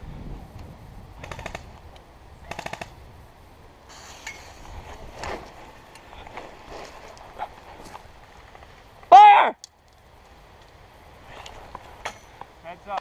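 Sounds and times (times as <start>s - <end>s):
airsoft gun firing bursts: 1.2s - 1.7s, 2.5s - 3.0s.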